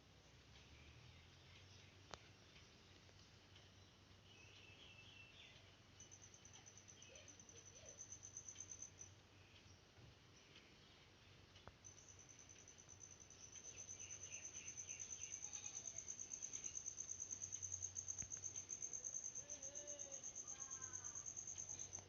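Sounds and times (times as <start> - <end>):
high-pitched chirps: 4.4 - 9.1, 11.8 - 22.0
faint wavering tones: 11.8 - 22.0.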